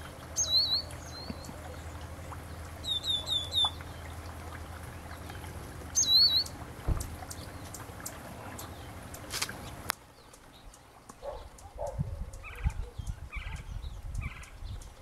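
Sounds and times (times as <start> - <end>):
songbird calling: 0.0 - 15.0
steady low hum: 0.0 - 15.0
low thump: 6.8 - 7.2.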